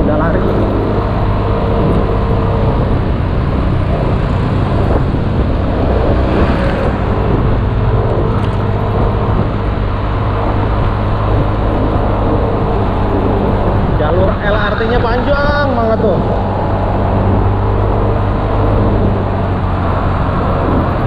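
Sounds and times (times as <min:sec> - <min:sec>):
motor scooter engine hum: 0:00.0 - 0:21.0
road and traffic noise: 0:00.0 - 0:21.0.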